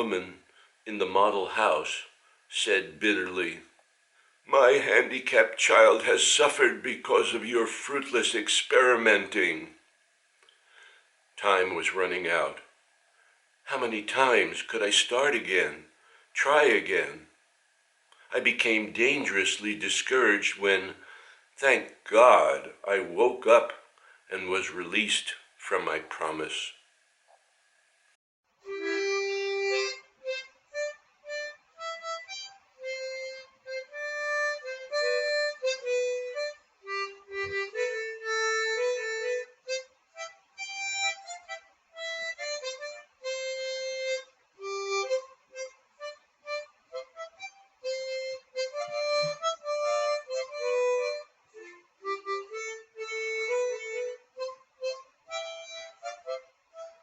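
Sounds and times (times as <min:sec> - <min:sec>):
reedy wind instrument melody: 0:28.7 - 0:30.4, 0:31.3 - 0:39.8, 0:47.0 - 0:54.2, 0:55.3 - 0:57.0.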